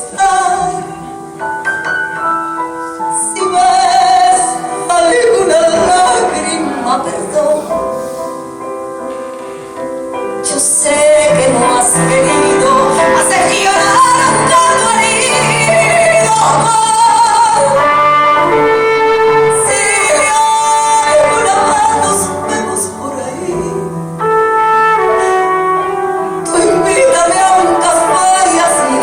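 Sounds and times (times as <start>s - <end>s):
woman singing a ballad: 0.0s - 1.4s, 2.8s - 8.2s, 10.3s - 24.1s, 26.4s - 29.0s
piano and band accompaniment: 0.0s - 29.0s.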